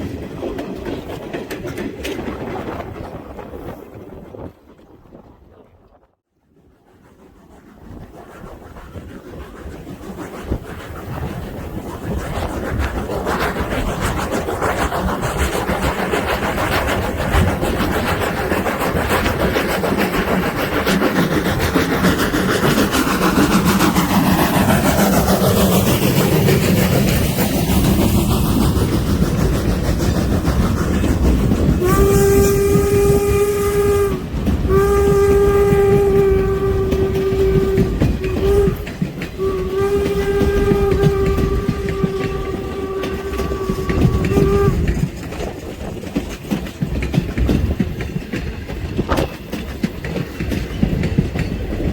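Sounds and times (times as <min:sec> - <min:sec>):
steam train rumble and clatter: 0:00.0 - 0:51.9
steam whistle chime blasts: 0:31.8 - 0:44.9.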